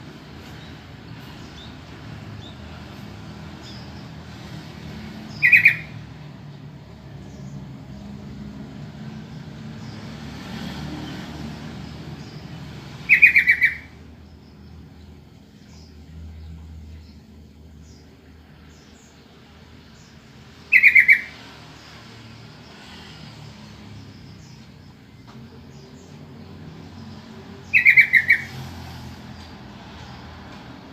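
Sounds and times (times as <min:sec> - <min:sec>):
bird calling in quick notes: 0:05.4 - 0:05.9, 0:13.1 - 0:13.9.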